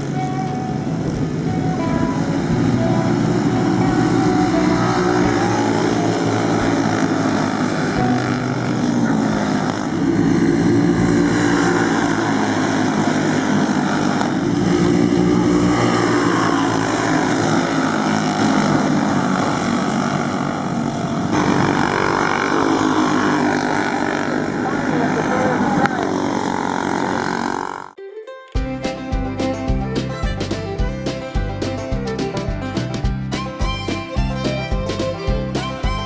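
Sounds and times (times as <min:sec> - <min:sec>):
go-kart engines droning: 0:00.0 - 0:28.0.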